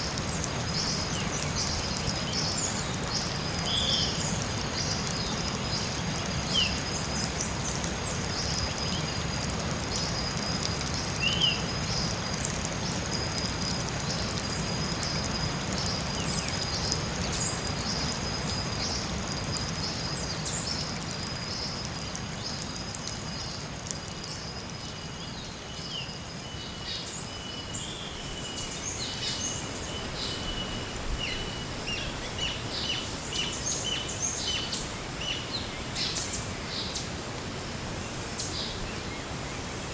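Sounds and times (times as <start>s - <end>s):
steady hiss: 11.2s - 39.9s.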